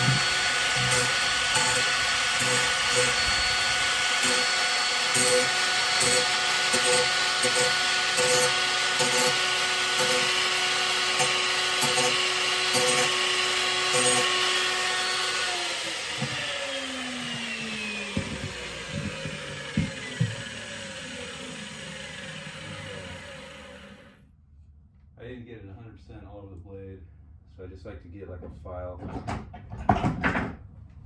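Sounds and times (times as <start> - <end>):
angle grinder whining on steel: 0.0 - 24.2.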